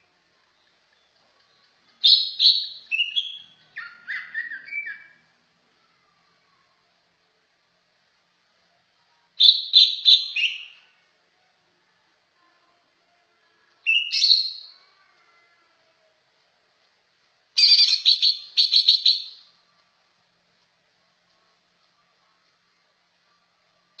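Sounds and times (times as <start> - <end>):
songbird singing high notes: 2.0 - 5.2, 9.4 - 10.8, 13.9 - 14.8.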